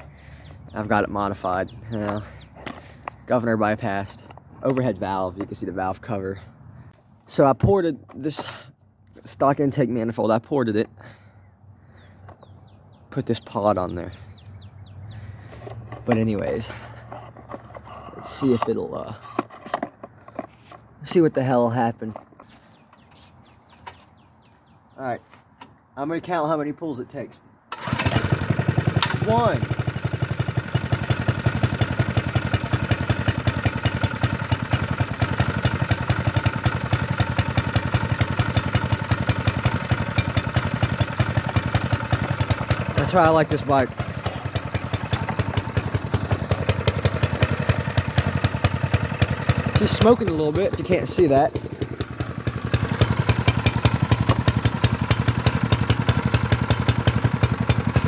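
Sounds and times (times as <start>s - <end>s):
small engine running: 0.0s - 3.2s, 15.1s - 20.5s, 27.7s - 58.0s.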